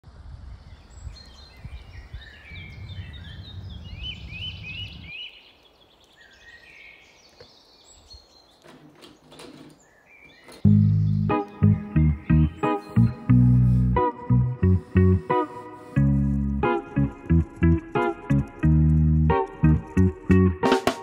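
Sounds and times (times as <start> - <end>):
songbirds chirping: 0.5 - 21.0
guitar-led music: 10.6 - 21.0.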